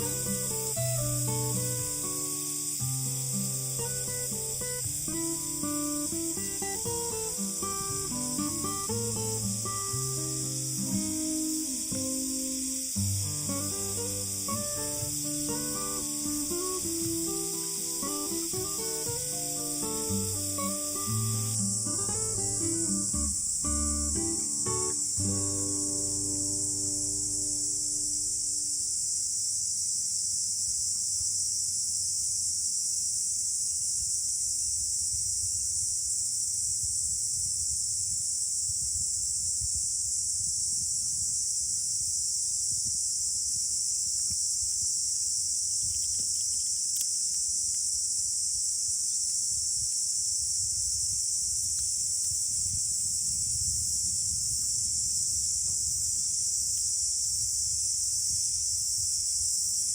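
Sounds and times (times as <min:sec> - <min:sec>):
high-pitched insect chorus: 0:00.0 - 0:59.9
wind buffeting microphone: 0:50.6 - 0:59.6.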